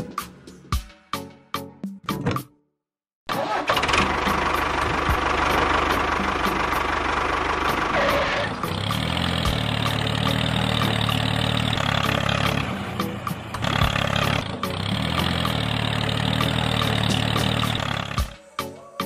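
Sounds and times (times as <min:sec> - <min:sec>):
tractor engine running: 0:03.3 - 0:18.4.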